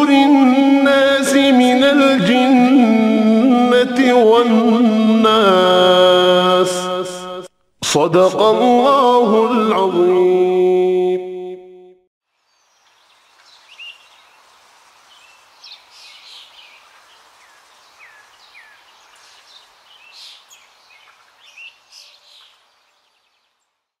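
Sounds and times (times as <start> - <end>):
background hiss: 12.3 - 23.6
small birds chirping: 12.4 - 24.0.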